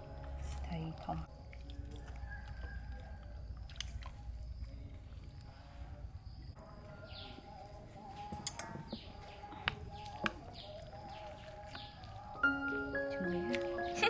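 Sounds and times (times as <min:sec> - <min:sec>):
birds chirping: 0:04.3 - 0:14.0.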